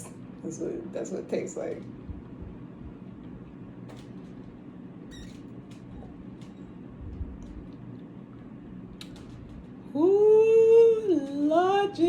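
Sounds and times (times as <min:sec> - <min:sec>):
low hum: 0:00.0 - 0:12.0
faint small clicks: 0:09.0 - 0:09.4.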